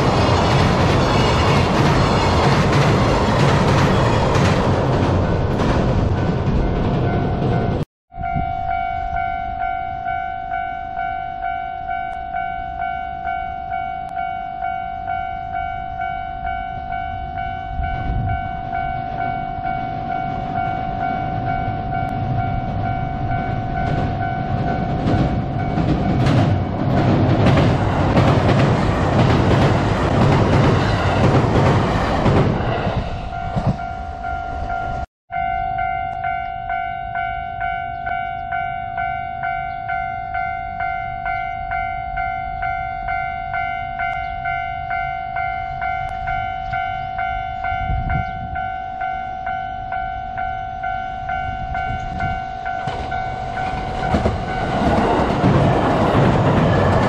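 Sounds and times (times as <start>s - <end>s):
train wheels rumbling on bridge: 0.0s - 8.4s, 17.2s - 35.1s, 49.9s - 57.0s
level crossing bell ringing: 8.1s - 26.2s, 33.3s - 54.7s.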